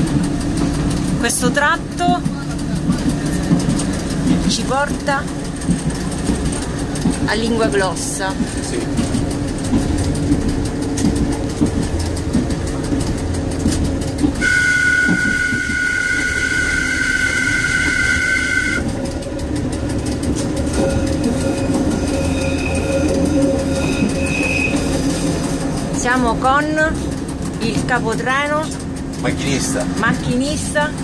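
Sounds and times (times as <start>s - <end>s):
train engine and rail noise: 0.0s - 31.0s
two-tone train horn: 14.4s - 19.0s.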